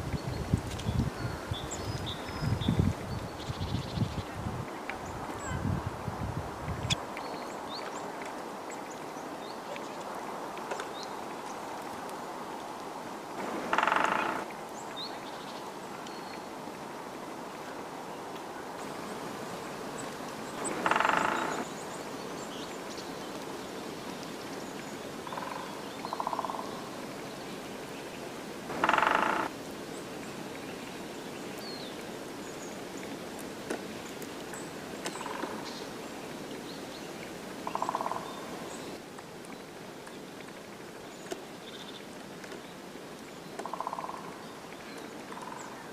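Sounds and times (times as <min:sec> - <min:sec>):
forest hiss: 0:10.2 - 0:45.9
woodpecker drumming: 0:13.4 - 0:14.5, 0:20.6 - 0:21.7, 0:25.3 - 0:26.6, 0:28.7 - 0:29.5, 0:37.7 - 0:38.3, 0:43.6 - 0:44.2.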